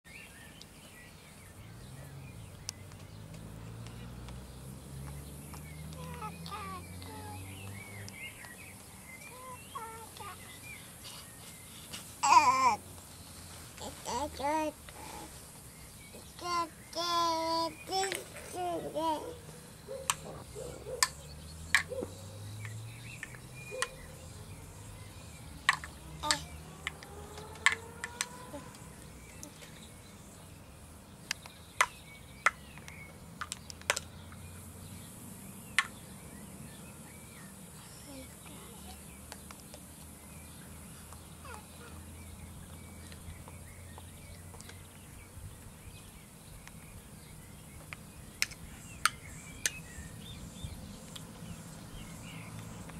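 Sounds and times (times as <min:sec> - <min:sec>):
small birds chirping: 0:00.1 - 0:52.9.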